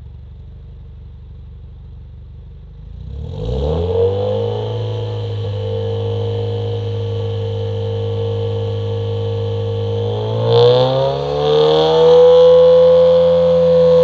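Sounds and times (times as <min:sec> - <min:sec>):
car exhaust revving: 0:03.0 - 0:14.0.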